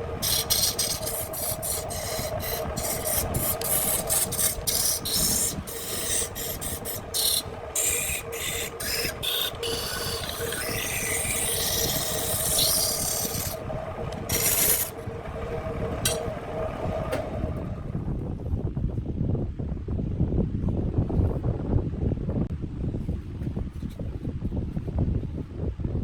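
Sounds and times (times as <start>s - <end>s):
tool scraping spinning wood: 0.0s - 17.8s
wood lathe motor hum: 0.0s - 18.0s.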